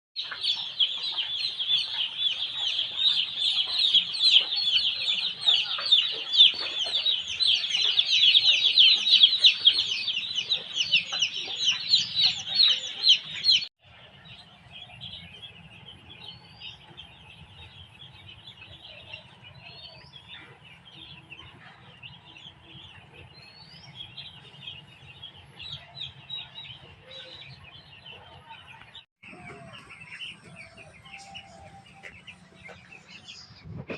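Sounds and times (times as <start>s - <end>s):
chicks peeping: 0.2s - 33.9s.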